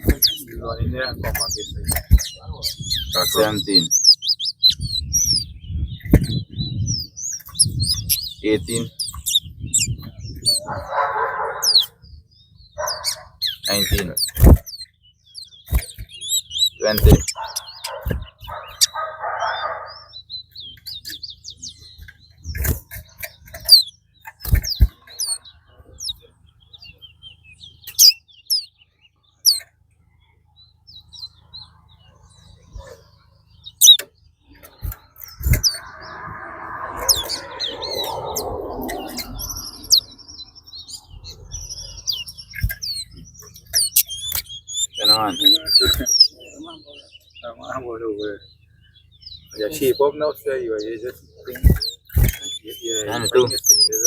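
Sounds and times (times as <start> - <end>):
songbirds chirping: 0.0 - 54.0
low voices murmuring: 34.5 - 43.4, 49.4 - 54.0.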